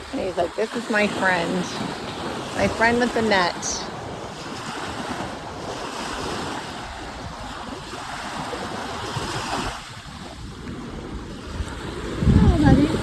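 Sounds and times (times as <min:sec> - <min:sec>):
waves: 0:00.0 - 0:13.0
wind buffeting microphone: 0:00.0 - 0:13.0
wind rushing: 0:08.9 - 0:13.0.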